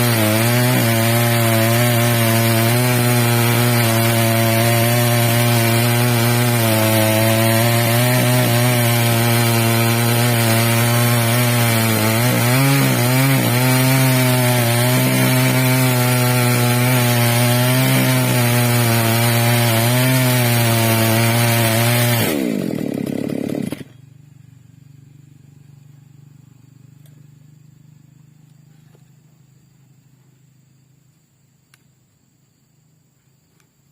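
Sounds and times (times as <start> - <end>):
chainsaw ripping log: 0.0 - 24.0.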